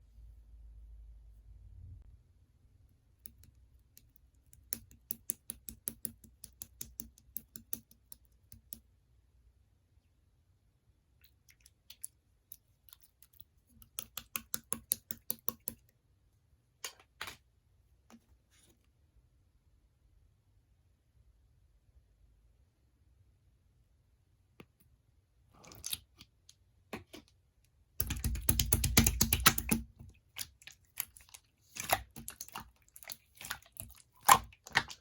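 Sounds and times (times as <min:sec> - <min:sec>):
slime squishes: 0:11.2 - 0:15.9, 0:25.5 - 0:26.5, 0:28.0 - 0:35.0.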